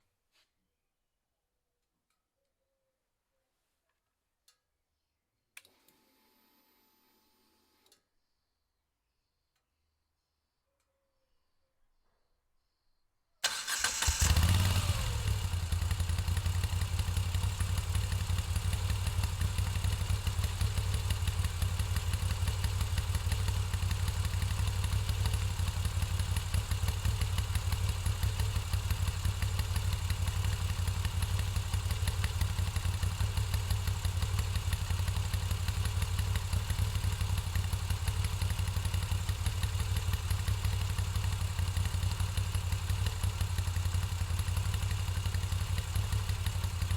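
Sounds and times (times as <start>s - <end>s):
motorcycle engine starting and idling: 13.4s - 46.9s.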